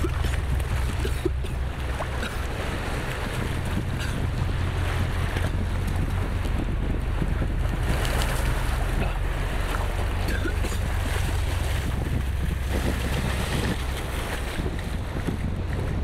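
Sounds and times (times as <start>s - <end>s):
ocean surf washing: 0.0s - 16.0s
wind buffeting microphone: 0.0s - 16.0s.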